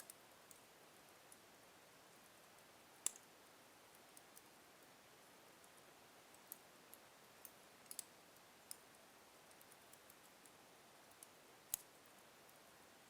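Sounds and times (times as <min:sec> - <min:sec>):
faint steady hiss: 0:00.0 - 0:13.0
wood fire crackling: 0:04.0 - 0:12.7.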